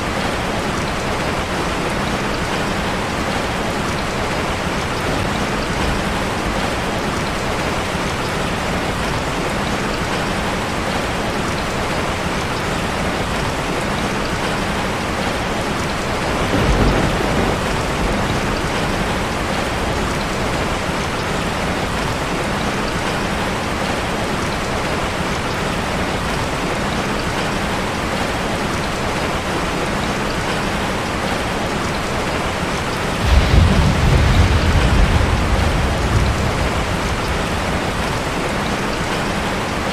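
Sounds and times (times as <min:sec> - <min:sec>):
heavy rain on a metal roof: 0:00.0 - 0:39.9
thunder rolling: 0:16.2 - 0:20.8, 0:33.2 - 0:39.4.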